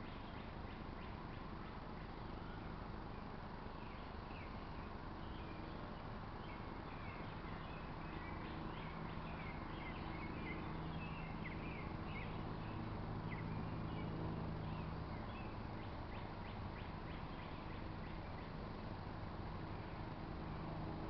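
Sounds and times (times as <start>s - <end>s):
steady low hum: 0.0s - 21.0s
birds chirping: 3.2s - 18.7s.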